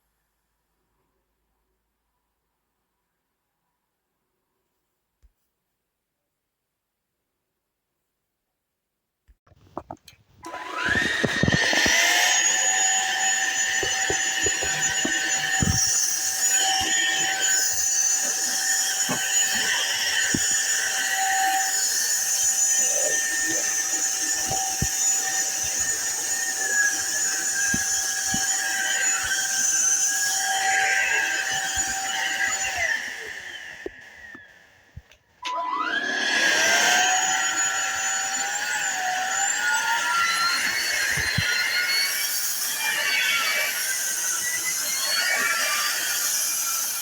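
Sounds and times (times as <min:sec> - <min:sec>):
vacuum cleaner motor whining: 0:09.8 - 0:47.0.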